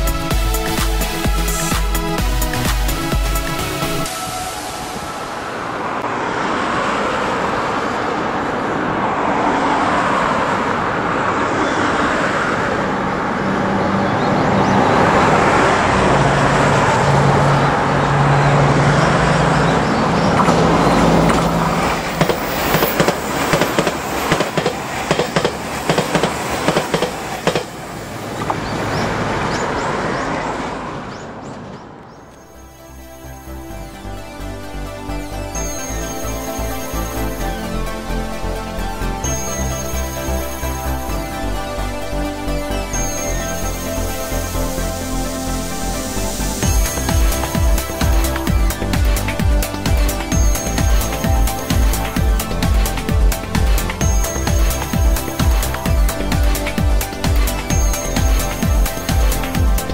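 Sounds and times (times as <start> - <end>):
road traffic passing: 0.0 - 59.9
train wheels clacking on rail joints: 20.4 - 27.8.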